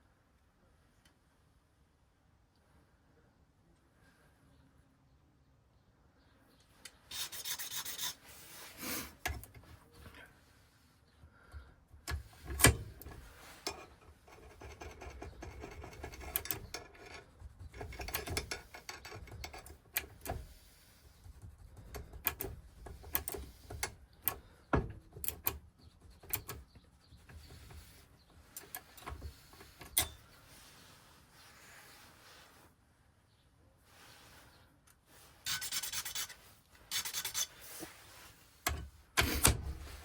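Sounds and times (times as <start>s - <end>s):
metal parts clicking and tapping: 9.2s - 9.7s, 12.0s - 20.6s, 21.3s - 30.2s, 35.5s - 37.5s, 38.6s - 40.0s.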